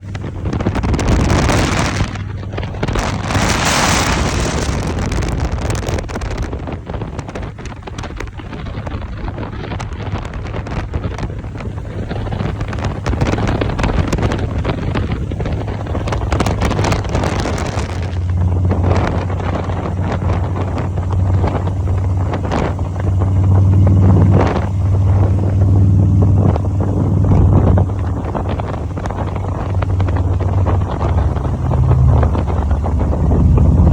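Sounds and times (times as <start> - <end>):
motorcycle engine drone: 0.0 - 33.9
wind buffeting microphone: 0.0 - 33.9.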